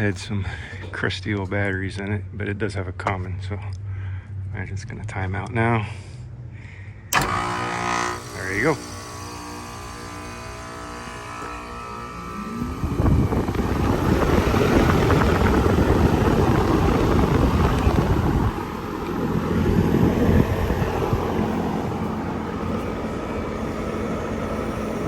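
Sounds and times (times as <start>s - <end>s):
air conditioner fan rushing: 7.1s - 25.0s.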